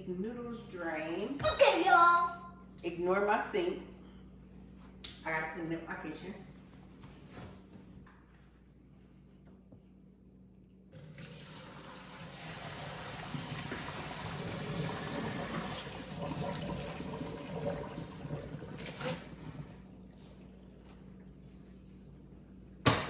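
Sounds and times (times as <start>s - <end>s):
pasta water pouring into colander: 11.0s - 20.2s.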